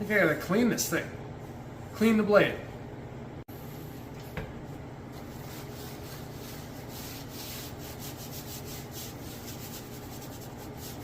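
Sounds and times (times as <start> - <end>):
blade being rubbed clean: 5.2 - 11.0.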